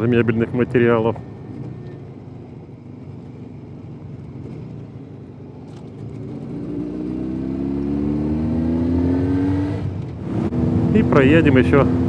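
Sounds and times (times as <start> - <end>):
motorcycle engine revving: 3.6 - 12.0.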